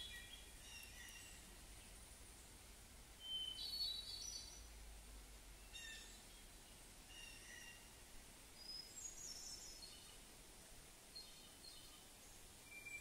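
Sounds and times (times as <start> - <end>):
bird chirps and trills: 0.0 - 1.5, 3.2 - 4.7
low steady hiss: 0.0 - 13.0.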